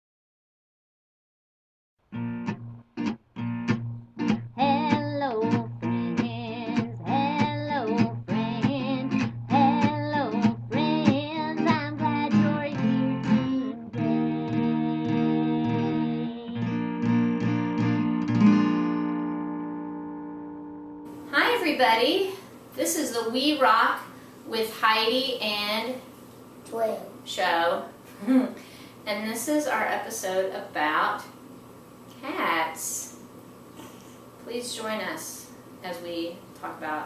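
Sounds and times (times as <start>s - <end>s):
acoustic guitar strumming: 2.1s - 21.7s.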